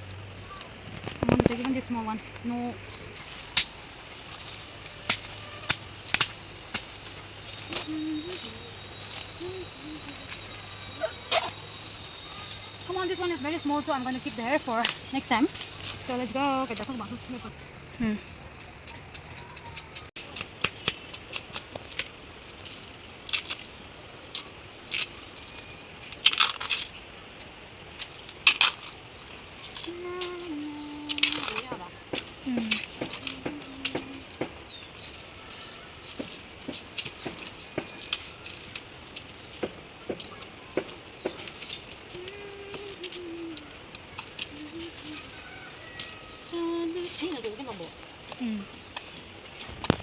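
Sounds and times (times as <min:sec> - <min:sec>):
footsteps crunching through leaves: 0:00.0 - 0:48.3
sticks snapping: 0:03.2 - 0:12.8, 0:14.2 - 0:17.0, 0:24.3 - 0:30.5, 0:31.1 - 0:34.6.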